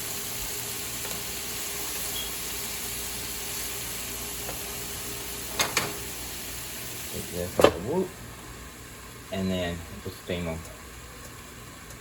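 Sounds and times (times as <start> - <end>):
onions sizzling in a pan: 0.0 - 9.3.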